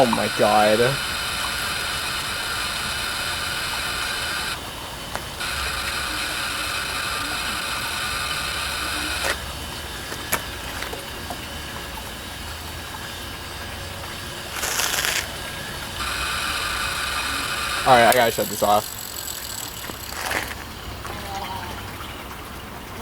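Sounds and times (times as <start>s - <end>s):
hiss: 0.0s - 4.6s, 5.4s - 9.4s
hard drive whirring whine: 0.0s - 21.1s.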